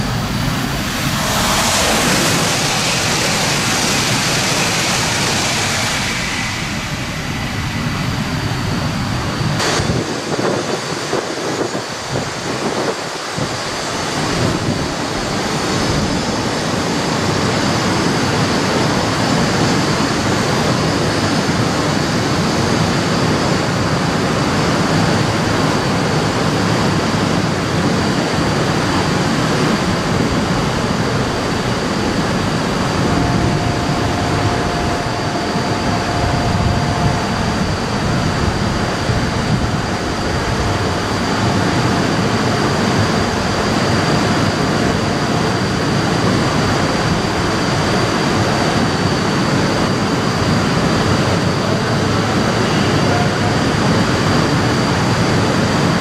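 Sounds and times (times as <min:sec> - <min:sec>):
bullet train rushing past: 0:00.0 - 0:56.0
high whine: 0:00.0 - 0:56.0
short steady tone: 0:32.2 - 0:38.8.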